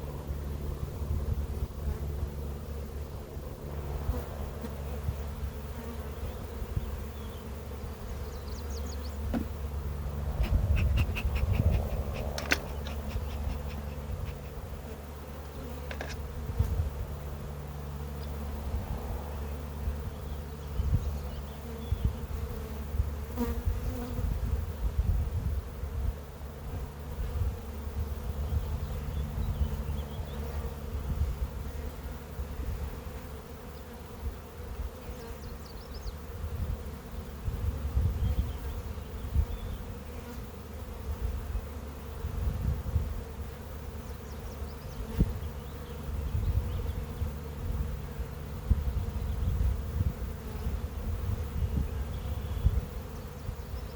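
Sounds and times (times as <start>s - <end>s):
bees buzzing: 0.0s - 24.8s.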